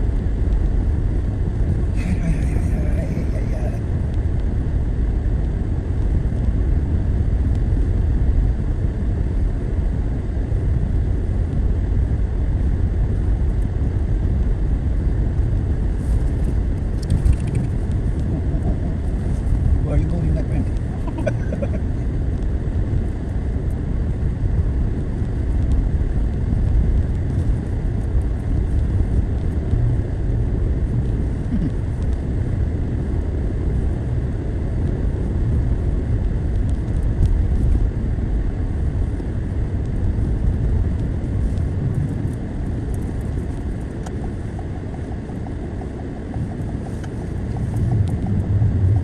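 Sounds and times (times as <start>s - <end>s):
car engine and tyre rumble: 0.0s - 49.0s.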